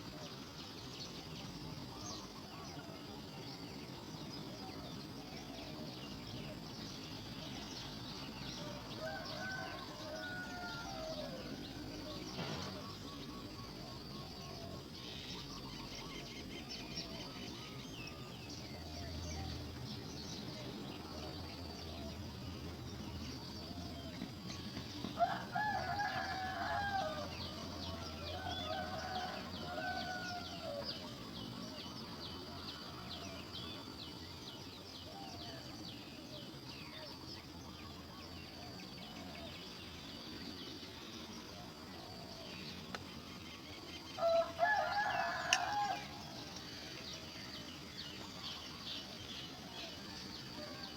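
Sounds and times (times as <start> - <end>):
rooster crowing: 9.0 - 11.7, 25.2 - 30.8, 44.2 - 46.4.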